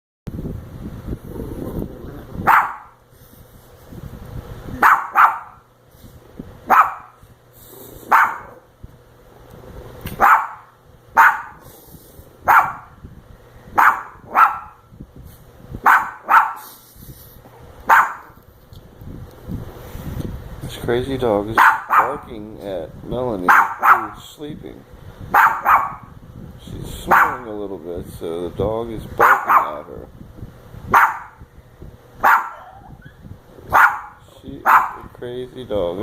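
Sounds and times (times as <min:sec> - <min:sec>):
dog barking: 0:02.4 - 0:03.0, 0:04.8 - 0:05.6, 0:06.6 - 0:07.2, 0:08.1 - 0:08.6, 0:10.2 - 0:11.6, 0:12.4 - 0:13.0, 0:13.7 - 0:14.8, 0:15.8 - 0:16.7, 0:17.9 - 0:18.4, 0:21.6 - 0:22.3, 0:23.5 - 0:24.2, 0:25.3 - 0:26.1, 0:27.1 - 0:27.5, 0:29.2 - 0:29.9, 0:30.9 - 0:31.4, 0:32.2 - 0:35.1.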